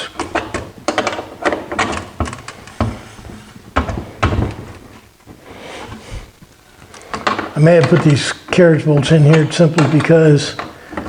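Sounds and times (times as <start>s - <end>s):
clicks and knocks on plywood: 0.1s - 6.0s, 6.8s - 8.2s.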